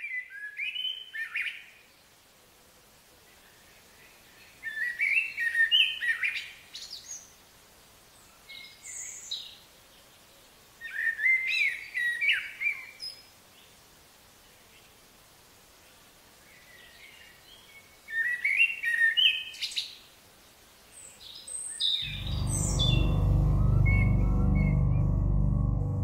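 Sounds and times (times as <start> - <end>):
songbird singing: 0.0 - 7.4, 8.0 - 13.8, 15.8 - 26.0
background hiss: 0.0 - 26.0.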